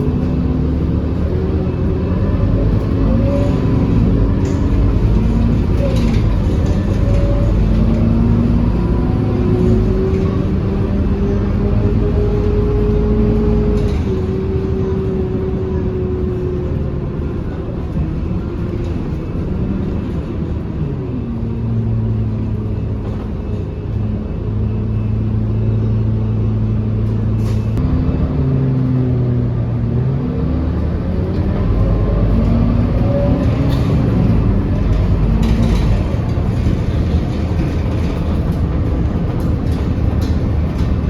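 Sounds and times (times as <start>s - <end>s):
bus engine humming: 0.0s - 41.0s.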